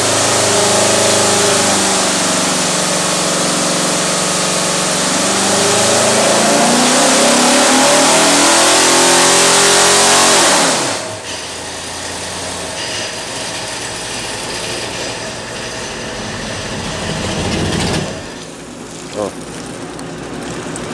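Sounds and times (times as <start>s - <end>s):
car engine at full throttle: 0.0s - 11.3s.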